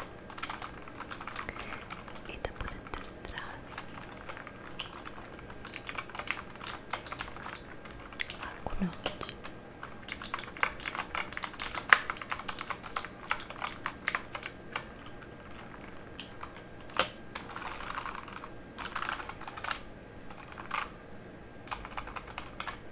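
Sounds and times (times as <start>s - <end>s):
mechanical keyboard clicking: 0.0s - 20.9s, 21.7s - 22.8s.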